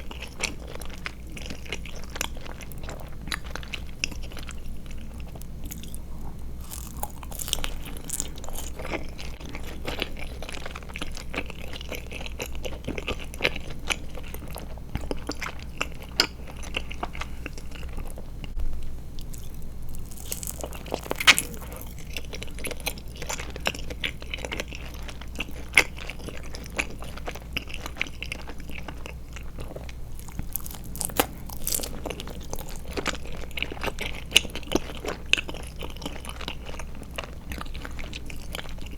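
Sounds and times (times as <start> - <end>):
biting and chewing gummies: 0.0 - 18.6, 19.2 - 38.9.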